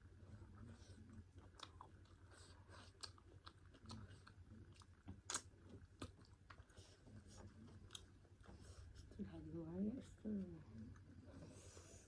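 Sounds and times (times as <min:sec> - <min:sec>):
faint chewing and mouth clicks: 0:00.2 - 0:09.2.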